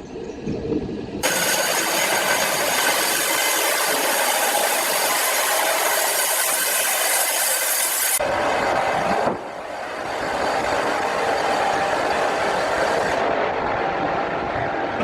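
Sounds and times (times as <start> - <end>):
power saw cutting log: 1.2 - 8.2.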